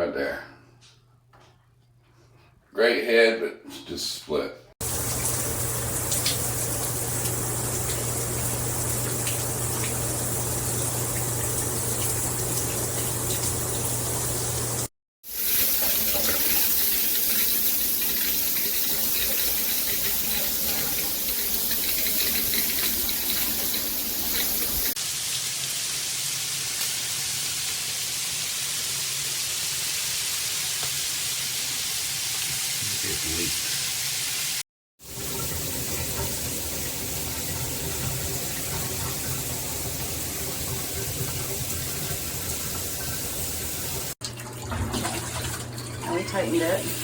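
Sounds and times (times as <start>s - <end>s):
shower head spraying water: 4.8s - 25.0s, 30.4s - 44.2s.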